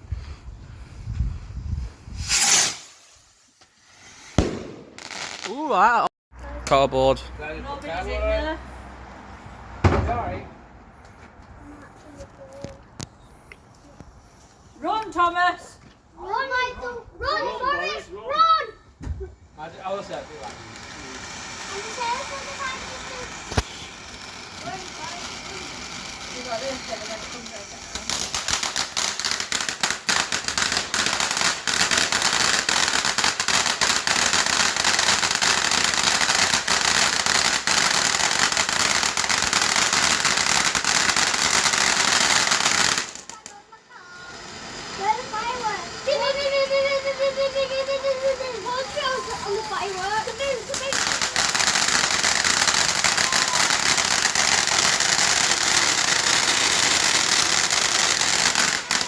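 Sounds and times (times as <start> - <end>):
firework hiss: 0.9 - 5.7, 19.5 - 59.0
firework crackling: 1.5 - 6.8, 19.5 - 59.0.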